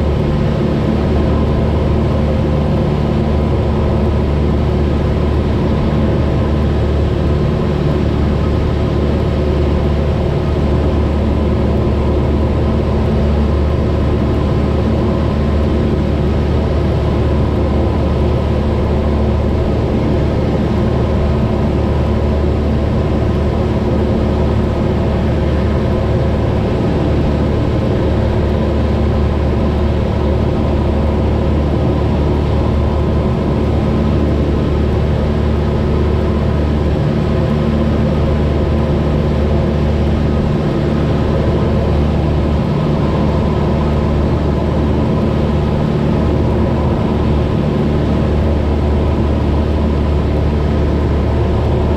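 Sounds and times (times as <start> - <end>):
propeller plane engine droning: 0.0 - 51.9.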